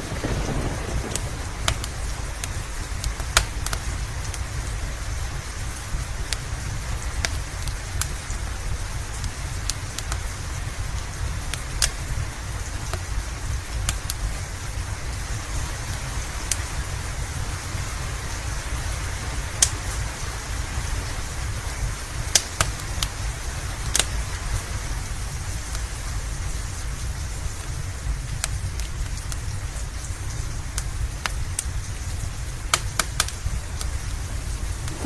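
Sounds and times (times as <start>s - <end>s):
low rumble: 0.0s - 8.5s, 34.2s - 35.0s
wood fire crackling pops: 0.0s - 15.6s, 19.5s - 20.0s, 22.2s - 35.0s
steady rain: 0.0s - 35.0s.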